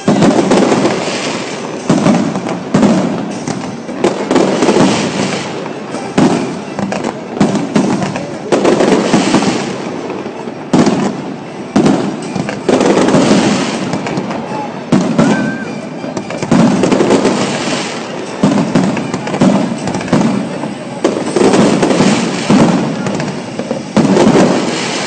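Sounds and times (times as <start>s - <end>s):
firework shells bursting: 0.0s - 25.0s.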